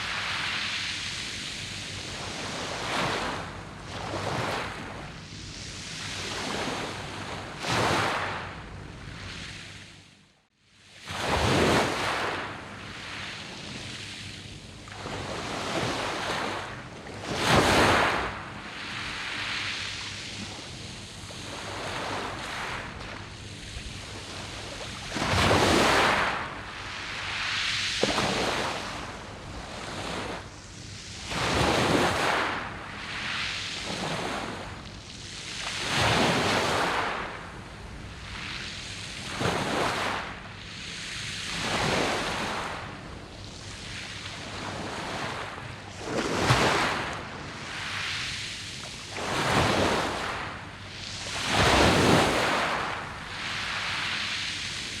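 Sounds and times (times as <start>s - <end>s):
waves washing over pebbles: 11.0s - 14.1s, 14.7s - 55.0s.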